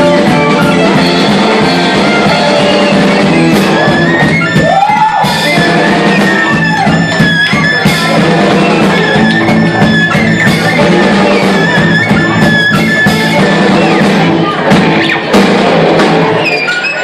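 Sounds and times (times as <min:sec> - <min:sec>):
upright bass: 0:00.0 - 0:16.5
drums: 0:00.0 - 0:17.0
guitar: 0:00.0 - 0:17.0
violin: 0:00.0 - 0:17.0.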